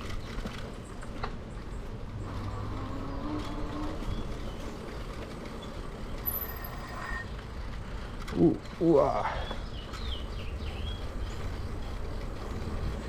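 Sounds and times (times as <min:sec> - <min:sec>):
electric bike rolling on bumpy path: 0:00.0 - 0:13.0.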